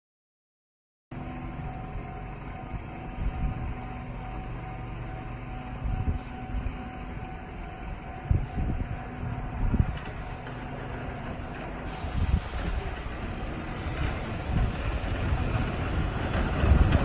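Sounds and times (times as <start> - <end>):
snowplow train rumbling: 1.2 - 17.0.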